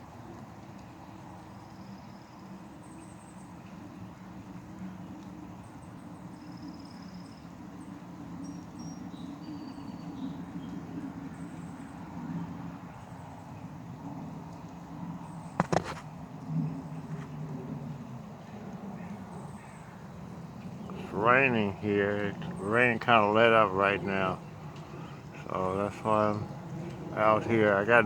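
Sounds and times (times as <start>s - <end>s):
steady low hum: 15.4s - 28.0s.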